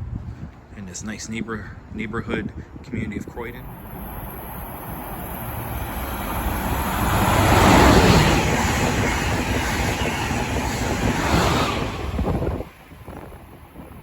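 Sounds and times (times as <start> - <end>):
passenger train passing: 3.3 - 14.0.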